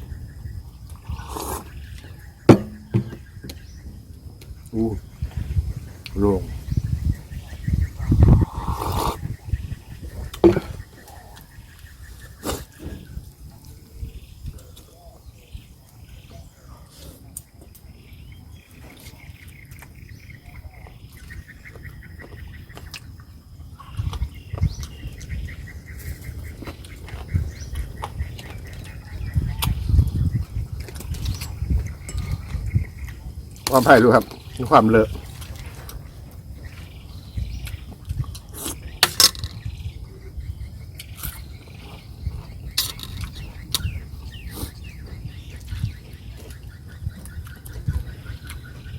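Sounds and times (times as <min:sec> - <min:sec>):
high insect drone: 0:00.0 - 0:16.8.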